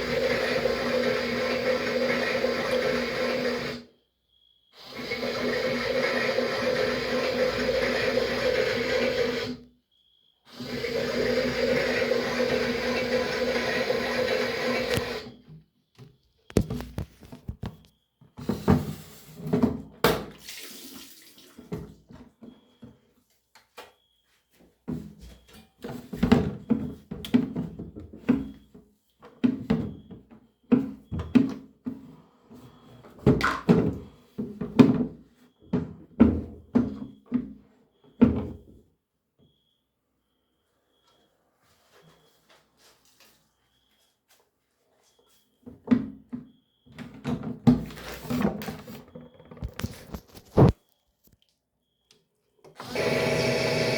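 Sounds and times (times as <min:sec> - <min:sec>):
knocks and handling noises: 0:15.4 - 0:20.3, 0:45.3 - 0:51.4
water running: 0:20.4 - 0:21.8.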